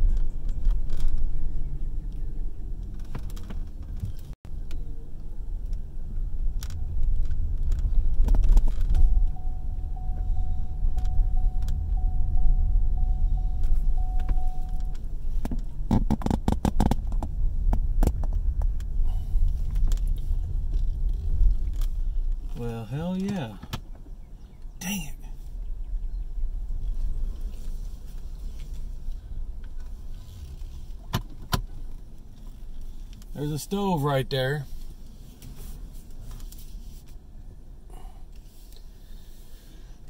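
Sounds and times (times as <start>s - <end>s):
car engine and road rumble: 0.0s - 40.0s
thin steady whine: 8.8s - 15.6s.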